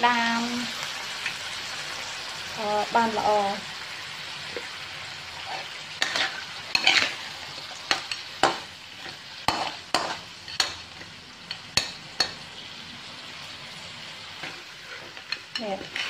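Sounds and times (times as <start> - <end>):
food sizzling in a wok: 0.0 - 16.0
metal spatula scraping a pan: 5.3 - 12.4, 14.4 - 16.0.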